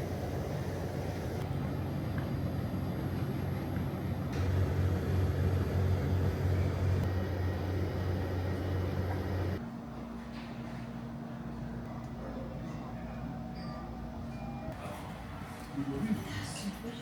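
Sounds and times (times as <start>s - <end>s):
vehicle engine rumbling: 0.0s - 9.6s.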